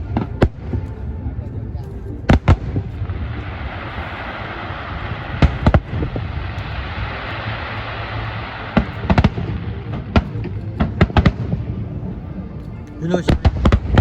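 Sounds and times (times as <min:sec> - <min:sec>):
fireworks banging: 0:02.2 - 0:12.1, 0:13.2 - 0:14.0
steady hiss: 0:02.4 - 0:11.5.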